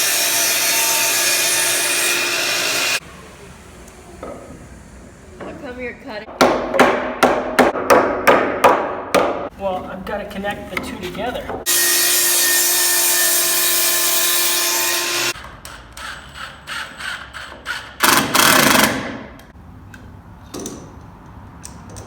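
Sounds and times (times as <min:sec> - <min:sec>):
power saw cutting wood: 0:00.0 - 0:03.0, 0:11.7 - 0:15.4.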